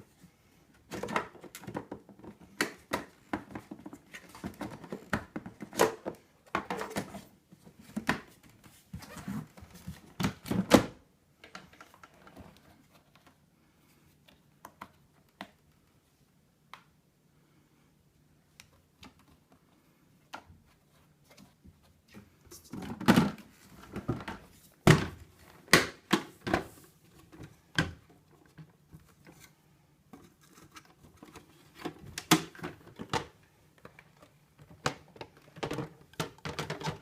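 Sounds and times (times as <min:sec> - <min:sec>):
plastic parts clicking and knocking: 0:00.8 - 0:07.2, 0:30.1 - 0:37.0.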